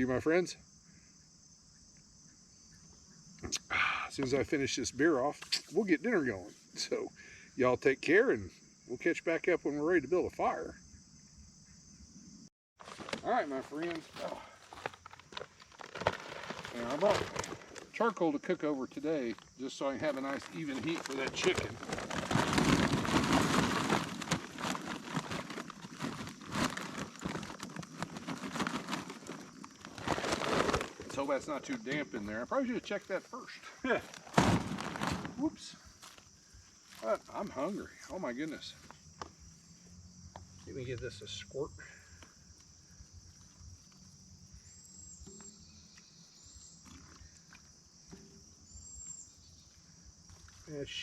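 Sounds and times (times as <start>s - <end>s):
crickets chirping: 0.0s - 51.0s
paper bag crinkling: 12.8s - 18.1s, 19.2s - 32.0s, 33.9s - 35.4s
bird chirps: 43.9s - 49.8s.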